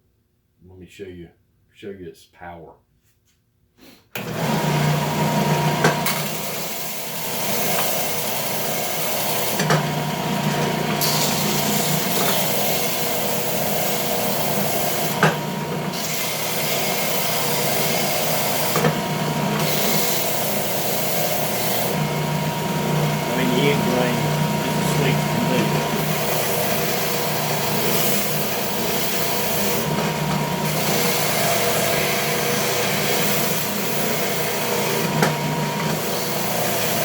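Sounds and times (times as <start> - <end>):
sander motor hum: 7.2 - 37.0
belt sander rasping on wood: 10.4 - 37.0.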